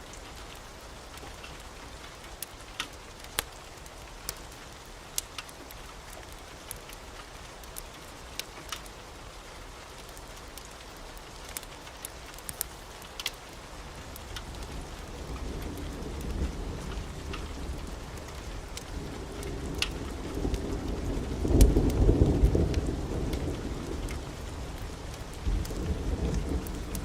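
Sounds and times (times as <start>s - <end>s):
steady rain: 0.0s - 27.0s
sharp crackles: 11.4s - 13.4s
thunder rumbling: 14.2s - 27.0s.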